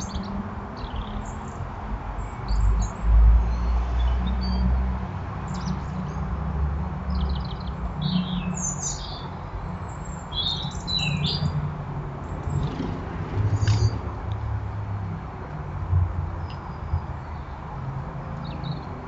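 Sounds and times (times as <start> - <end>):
garden birds chirping: 0.0 - 1.6, 7.1 - 11.6.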